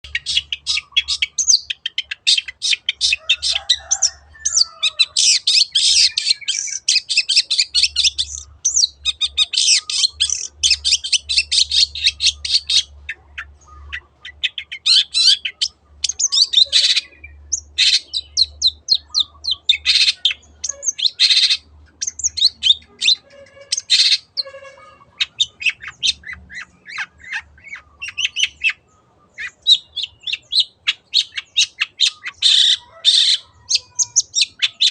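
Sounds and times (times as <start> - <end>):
bird singing sharp chattering notes: 0.0 - 34.9.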